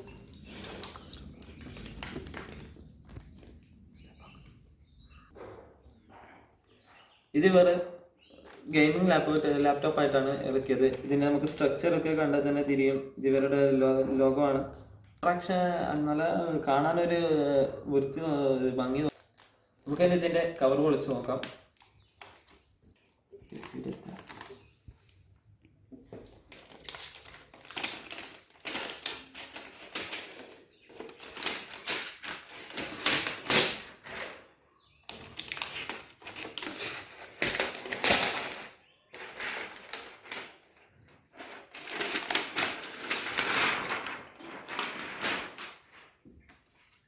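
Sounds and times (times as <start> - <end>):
plastic cover crackling and tearing: 19.1 - 25.2, 26.3 - 34.4, 35.0 - 46.2.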